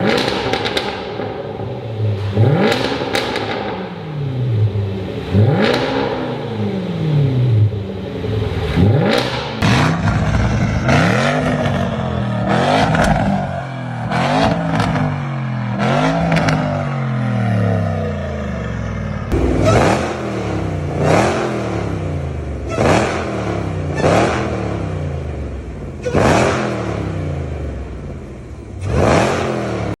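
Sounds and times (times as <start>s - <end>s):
engines revving in short blips: 19.3s - 25.1s, 25.9s - 27.8s, 28.8s - 30.0s.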